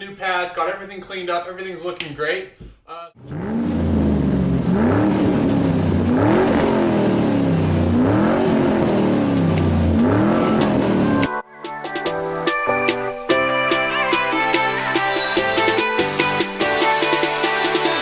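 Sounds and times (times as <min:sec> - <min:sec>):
car engine revving: 0:03.2 - 0:11.3.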